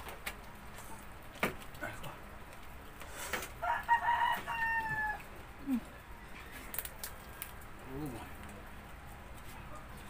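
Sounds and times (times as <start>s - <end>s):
rooster crowing: 3.6s - 5.3s.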